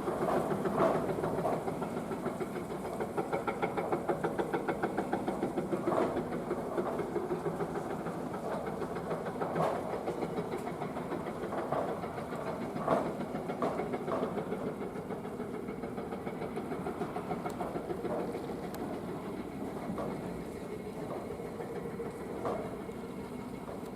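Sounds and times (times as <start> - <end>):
excavator engine running: 0.0 - 23.9.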